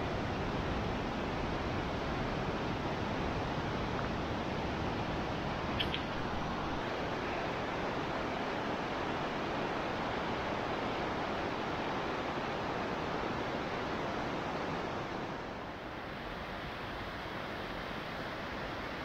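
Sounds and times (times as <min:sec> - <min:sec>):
stream cascades rushing: 0:00.0 - 0:19.0.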